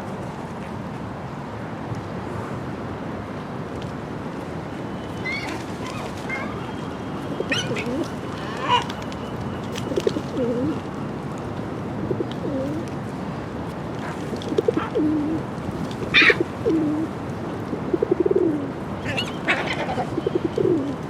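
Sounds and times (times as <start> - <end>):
background noise: 0.0 - 21.0
pigeons cooing: 7.4 - 9.0, 9.8 - 10.8, 12.1 - 12.9, 14.1 - 15.4, 16.0 - 21.0.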